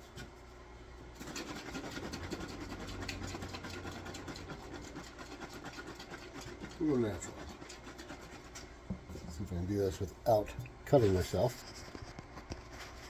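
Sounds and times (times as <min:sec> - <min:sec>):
rapid scratching and rubbing: 0:01.2 - 0:10.0, 0:10.9 - 0:13.0.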